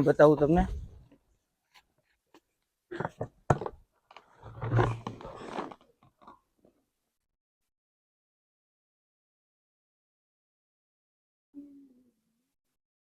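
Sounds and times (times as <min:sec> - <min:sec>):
plastic scraping rustle: 0:04.1 - 0:06.0.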